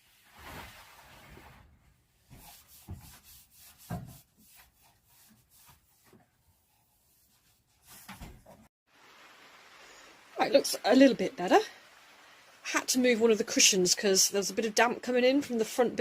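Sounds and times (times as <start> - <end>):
rubbing and scraping: 0.0 - 8.7.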